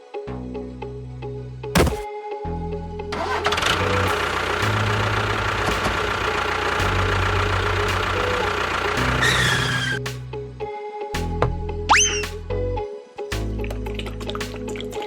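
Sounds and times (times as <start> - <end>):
engine running: 1.8 - 2.0, 3.2 - 10.0.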